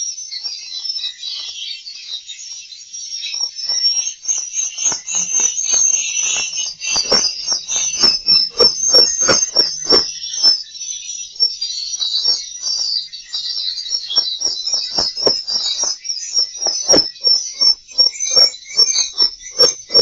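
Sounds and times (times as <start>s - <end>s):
swiftlets twittering: 3.6s - 10.5s, 12.1s - 20.0s
sharp clicks: 14.1s - 20.0s.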